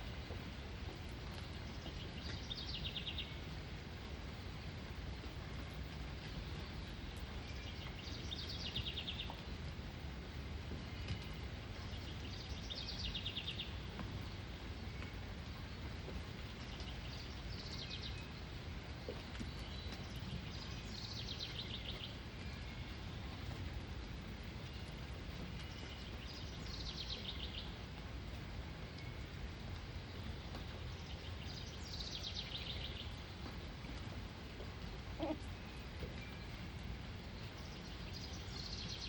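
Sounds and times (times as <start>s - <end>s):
low background rumble: 0.0s - 39.0s.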